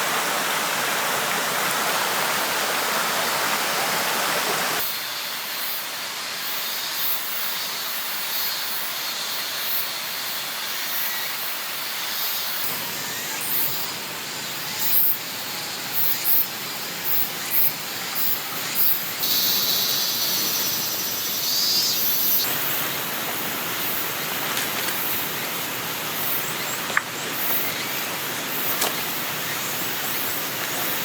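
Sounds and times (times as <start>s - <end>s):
river rushing: 0.0s - 4.8s, 22.4s - 31.0s.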